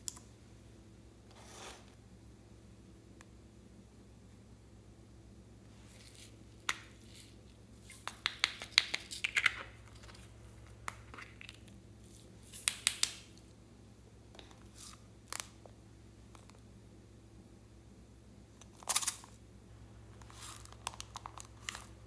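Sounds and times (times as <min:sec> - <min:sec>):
slime clicking and popping: 0:08.0 - 0:09.6, 0:12.6 - 0:13.3.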